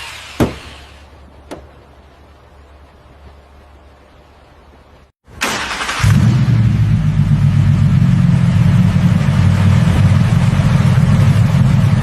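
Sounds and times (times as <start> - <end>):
car engine idling: 5.6 - 12.0.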